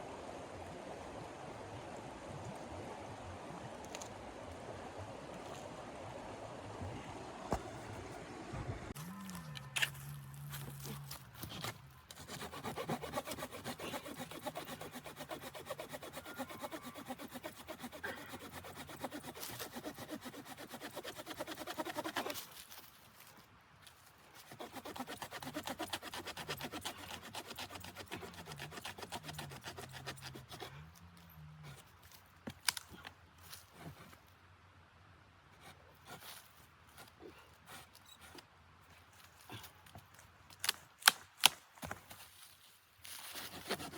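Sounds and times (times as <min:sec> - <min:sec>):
hand saw cutting wood: 0:09.0 - 0:22.6, 0:24.4 - 0:30.9, 0:43.2 - 0:43.9.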